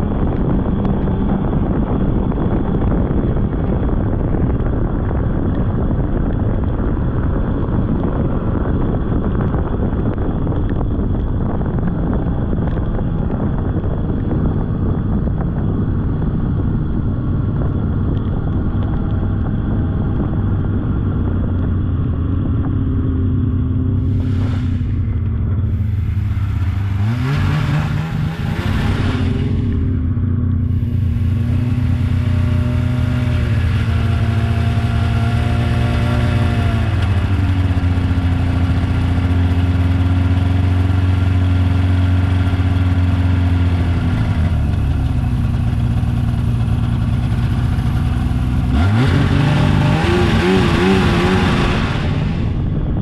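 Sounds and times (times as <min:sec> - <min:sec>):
snowmobile engine droning: 0:11.0 - 0:53.0.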